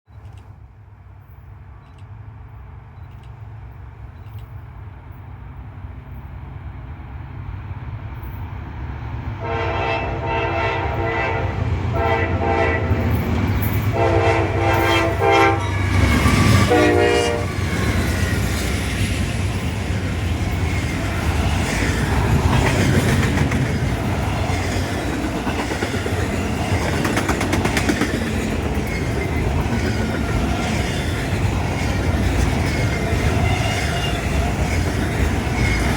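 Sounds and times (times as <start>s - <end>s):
diesel locomotives approaching: 0.1s - 35.9s
train air horn blasts: 9.4s - 13.2s, 13.9s - 17.7s
wheels clattering on rails: 17.4s - 35.9s.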